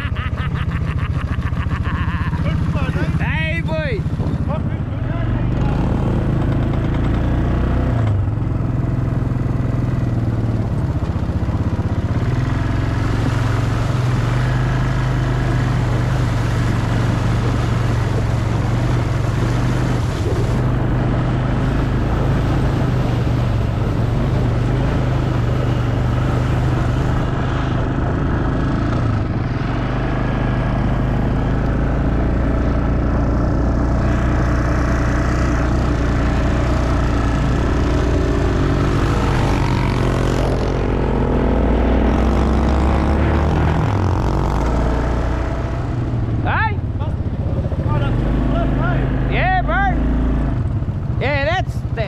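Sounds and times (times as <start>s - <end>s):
quad bike engine running: 0.0s - 52.0s
wind and tyre noise: 0.0s - 52.0s.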